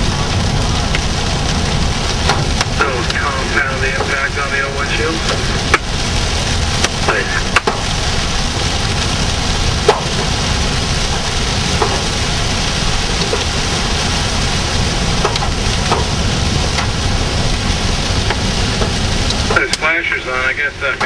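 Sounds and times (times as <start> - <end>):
rain drumming on car: 0.0 - 21.0
road noise: 0.0 - 21.0
drops tapping on windshield: 9.7 - 17.3.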